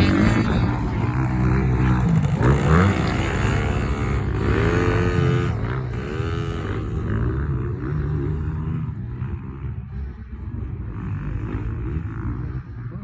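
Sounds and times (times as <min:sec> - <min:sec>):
dirt bike engine revving: 0:00.0 - 0:09.7.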